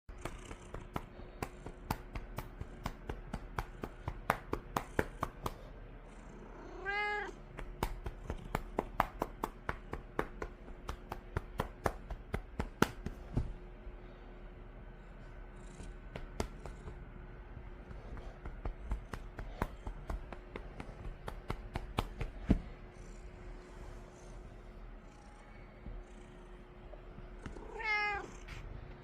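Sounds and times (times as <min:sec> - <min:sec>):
cat meowing: 0:06.7 - 0:07.4, 0:27.6 - 0:28.3
hand patting a cat: 0:07.5 - 0:13.7, 0:17.8 - 0:22.8.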